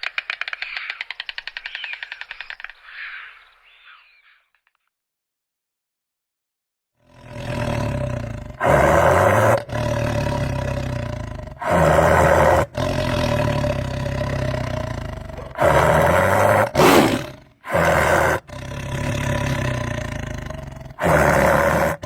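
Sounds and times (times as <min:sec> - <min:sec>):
large animal low calls: 0:07.2 - 0:22.0.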